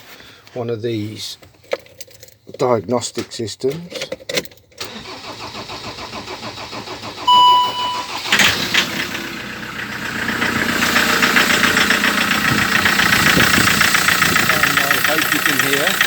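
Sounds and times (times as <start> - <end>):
diesel engine starting and idling: 4.8 - 16.0
fast engine rattle: 5.0 - 16.0
short beep: 7.3 - 8.3.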